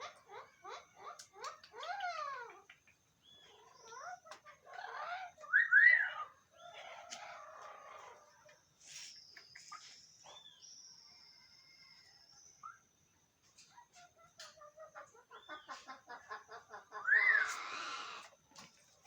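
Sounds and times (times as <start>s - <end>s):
parrots calling: 0.0s - 2.7s, 3.4s - 8.3s, 15.0s - 18.3s.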